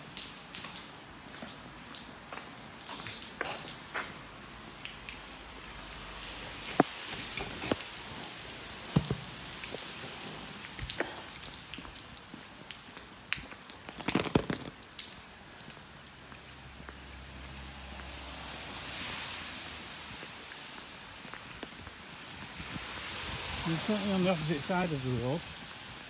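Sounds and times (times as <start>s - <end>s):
raindrops tapping close by: 0.0s - 26.0s
steady rain: 0.0s - 26.0s.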